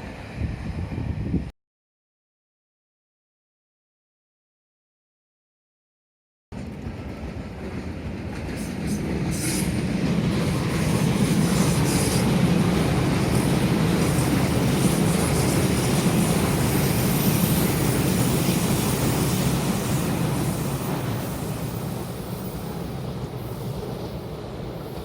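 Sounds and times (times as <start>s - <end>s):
electric train passing at speed: 0.0s - 1.5s, 6.6s - 25.0s
wheel and rail noise: 6.6s - 25.0s.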